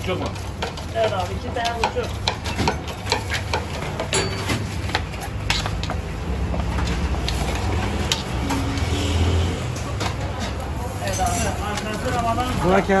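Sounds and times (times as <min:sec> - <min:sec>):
utensils clicking and knocking: 0:00.0 - 0:13.0.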